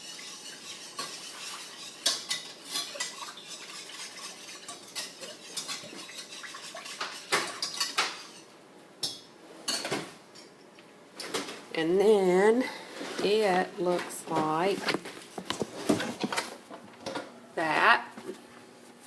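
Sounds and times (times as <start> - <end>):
utensil stirring in a pot: 0.0 - 8.5.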